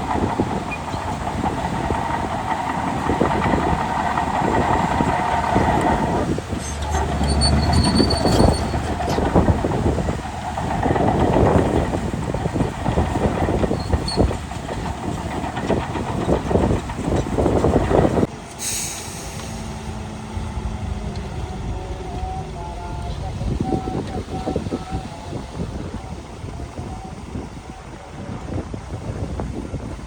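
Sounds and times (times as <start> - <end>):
bulldozer tracks clanking and squealing: 0.0 - 29.4
bulldozer engine hum: 0.0 - 30.0
brief hiss: 18.5 - 19.9.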